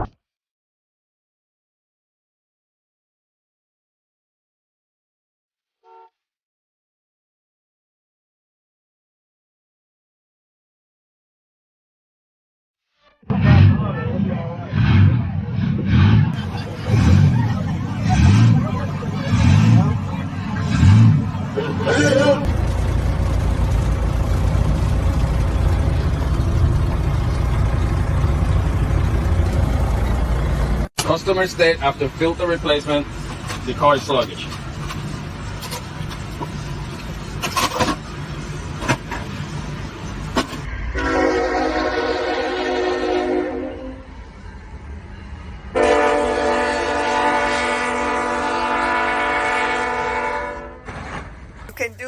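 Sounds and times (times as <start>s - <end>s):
train horn blasts: 5.8s - 6.2s, 40.9s - 44.1s, 45.7s - 50.9s
low rumble: 13.3s - 30.9s
road noise: 13.3s - 52.0s
vehicle engine rumble: 13.3s - 52.0s.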